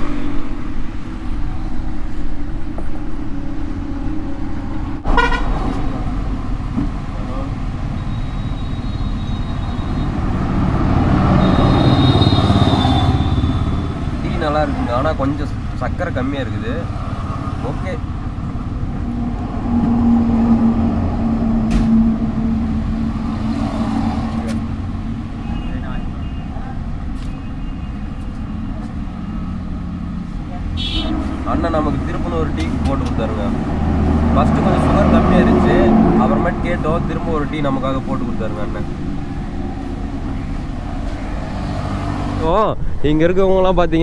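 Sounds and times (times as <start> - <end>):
highway traffic rumble: 0.0 - 44.0
high vehicle horn blast: 5.1 - 5.6, 11.3 - 14.2, 30.8 - 31.4
strong wind: 16.9 - 31.5, 38.8 - 44.0.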